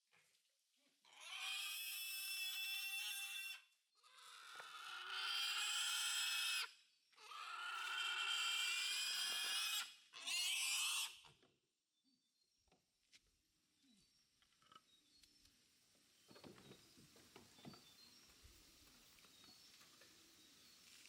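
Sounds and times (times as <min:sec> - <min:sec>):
piglets squealing: 0:01.1 - 0:11.2.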